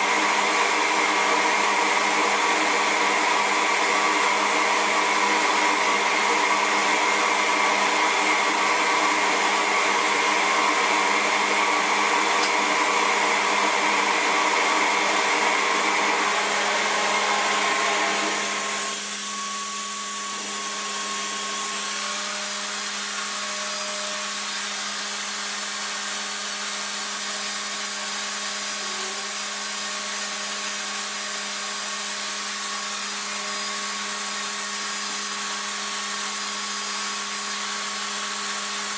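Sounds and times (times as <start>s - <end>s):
hair dryer motor running: 0.0s - 38.9s.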